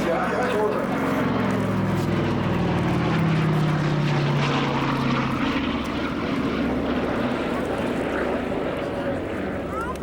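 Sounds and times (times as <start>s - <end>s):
propeller airplane flying past: 0.0s - 10.0s.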